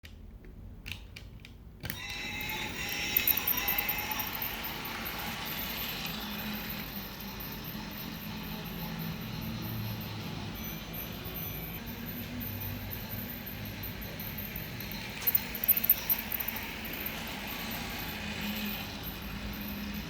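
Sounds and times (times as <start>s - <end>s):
model train running: 2.0s - 20.0s.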